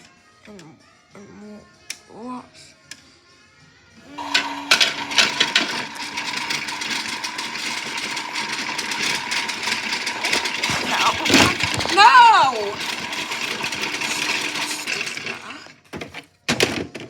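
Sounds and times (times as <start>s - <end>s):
small electric motor whirring: 4.1s - 15.8s
plastic rattling and clicking: 4.2s - 17.0s.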